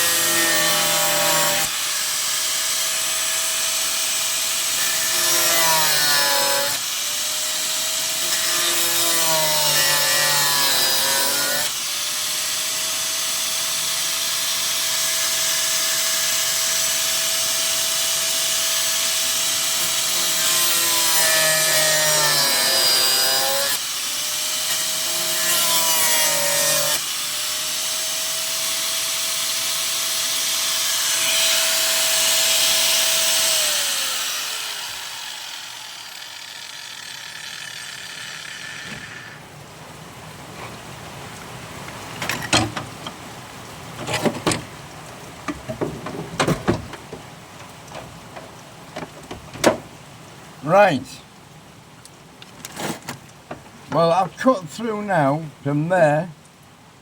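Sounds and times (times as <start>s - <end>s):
rotary burr grinding metal: 0.0s - 11.8s, 24.7s - 39.4s
tool winding down: 31.1s - 39.4s.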